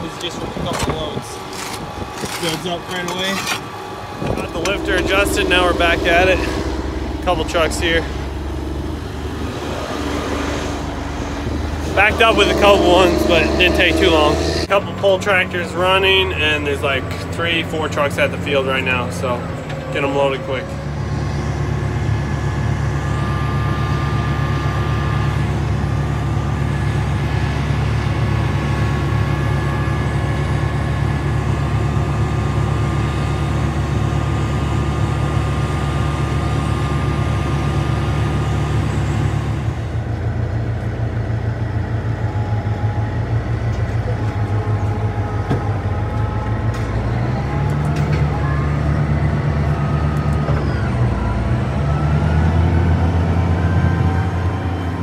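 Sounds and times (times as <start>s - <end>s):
harvester drives whining: 0.0s - 55.0s
tractor engine running: 0.0s - 55.0s.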